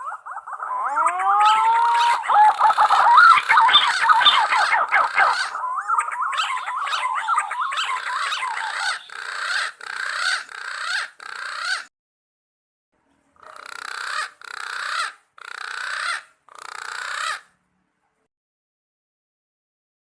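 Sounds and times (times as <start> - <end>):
pigeons whistling calls: 0.0 - 11.9.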